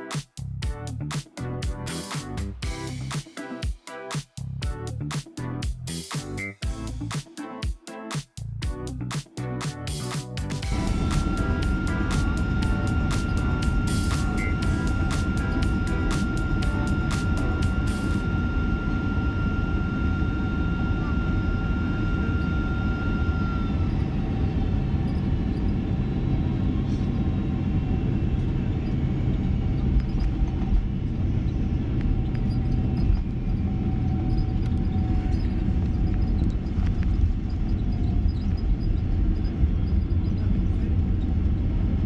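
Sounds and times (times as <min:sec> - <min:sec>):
thin steady whine: 0:09.7 - 0:42.0
airplane cabin engine rumble: 0:10.6 - 0:42.0.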